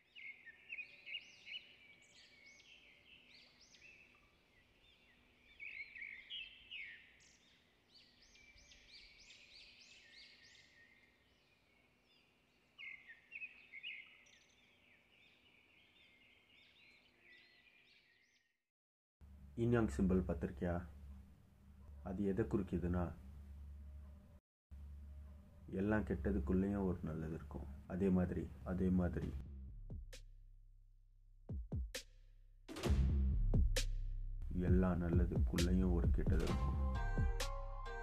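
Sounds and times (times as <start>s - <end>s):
small birds chirping: 0.0s - 18.6s.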